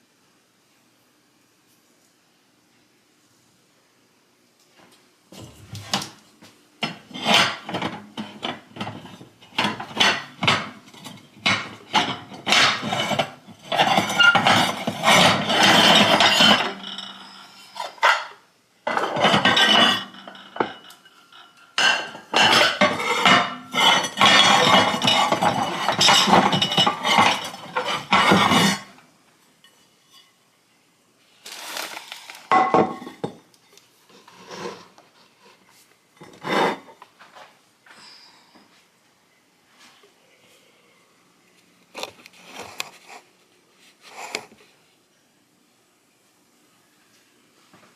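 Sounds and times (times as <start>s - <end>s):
hard objects clattering: 6.8s - 28.9s.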